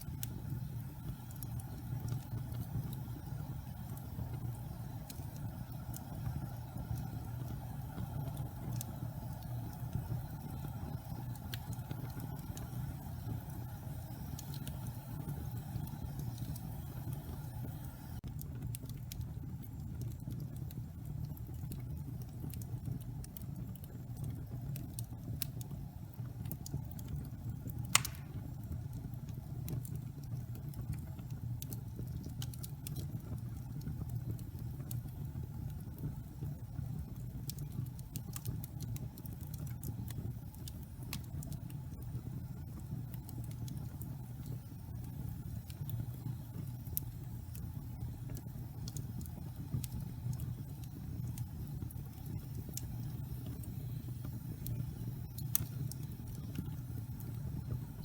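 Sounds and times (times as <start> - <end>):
fire crackling: 0.0 - 58.0
low rumble of log fire: 0.0 - 58.0
loud fire pop: 28.0 - 28.5.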